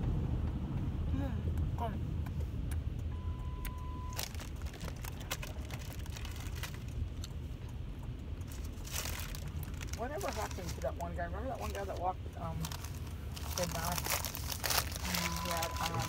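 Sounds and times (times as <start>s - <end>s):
car engine idling: 0.0s - 16.0s
steady beep: 3.1s - 4.2s, 15.0s - 16.0s.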